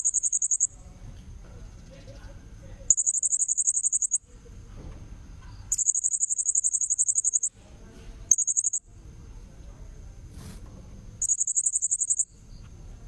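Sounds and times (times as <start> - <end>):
parrot high-pitched trills: 2.9 - 4.2, 5.7 - 7.5, 8.3 - 8.8.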